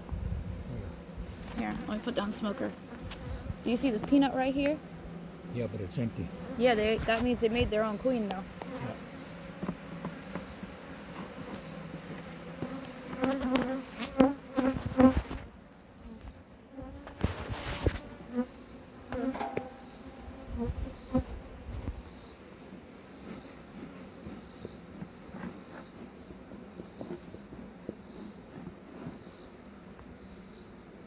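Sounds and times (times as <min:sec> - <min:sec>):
bees buzzing: 0:00.0 - 0:31.0
hive knocks and clatters: 0:09.4 - 0:15.4.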